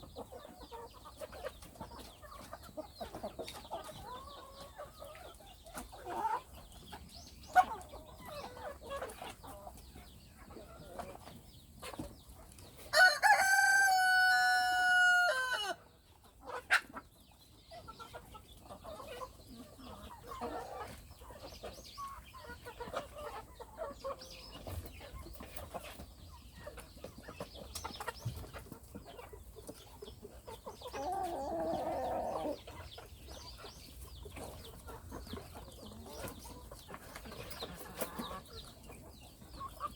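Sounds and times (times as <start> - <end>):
chickens clucking: 0.0 - 39.9
rooster crowing: 12.9 - 15.8.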